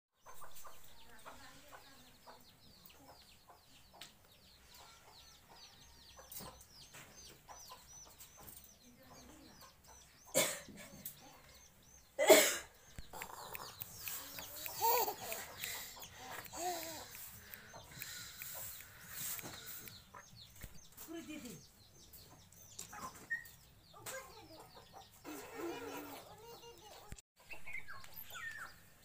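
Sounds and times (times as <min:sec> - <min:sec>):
small bird peeping: 0:00.2 - 0:29.0.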